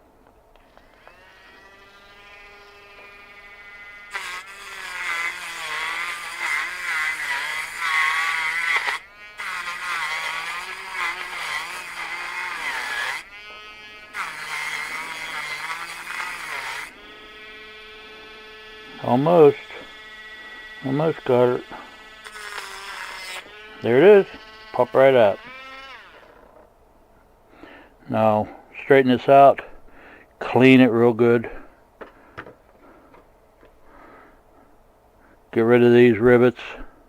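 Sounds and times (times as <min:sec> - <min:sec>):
rotary tool grinding: 0:00.7 - 0:26.7.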